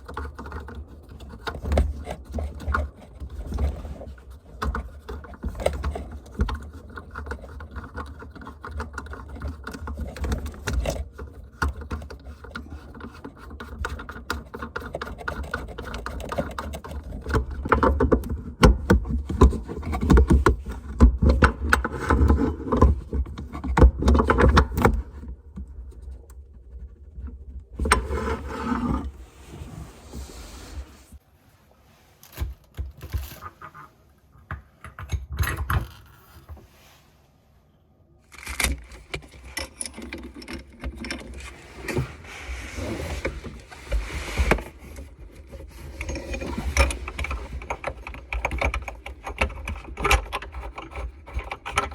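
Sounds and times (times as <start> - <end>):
hand tools clicking and scraping: 38.3 - 51.9.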